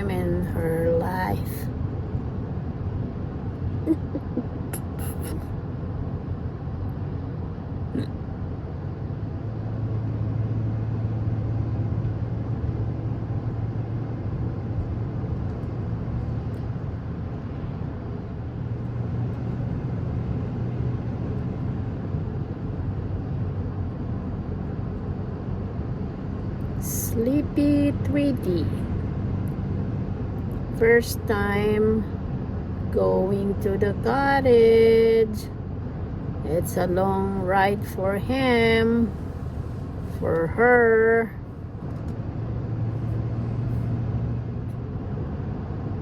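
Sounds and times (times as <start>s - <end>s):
low hum: 0.0s - 46.0s
car cabin rumble: 3.6s - 6.2s.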